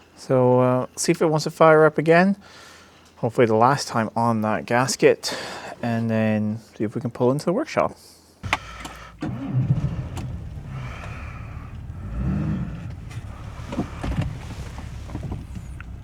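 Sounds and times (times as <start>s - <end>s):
car engine running: 8.4s - 16.0s
engine starter cranking: 8.4s - 16.0s.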